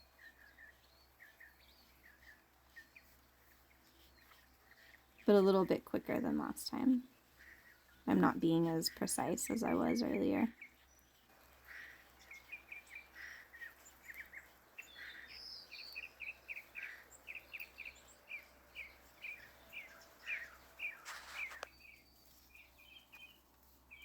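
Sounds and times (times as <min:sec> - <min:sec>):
songbirds chirping: 0:00.0 - 0:24.0
brief rustle: 0:19.8 - 0:23.9.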